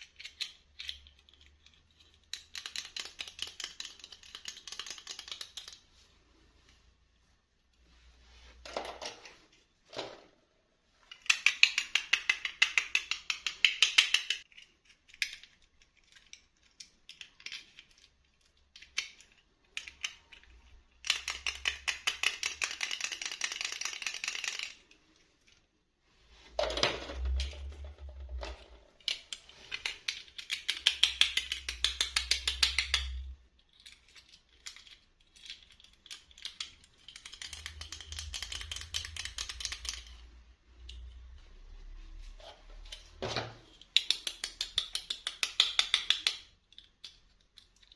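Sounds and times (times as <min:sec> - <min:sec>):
plastic packaging clicking and rattling: 0:26.7 - 0:40.2.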